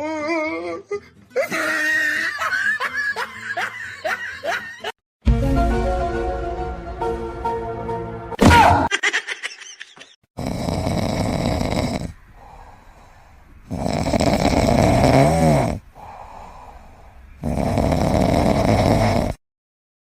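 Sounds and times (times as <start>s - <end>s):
pet snoring: 10.4s - 12.6s, 13.6s - 16.6s, 17.4s - 19.4s.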